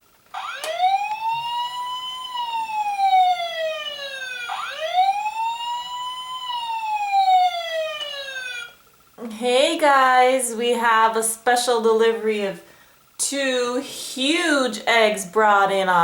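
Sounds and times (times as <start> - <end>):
toy siren wailing: 0.3 - 8.8.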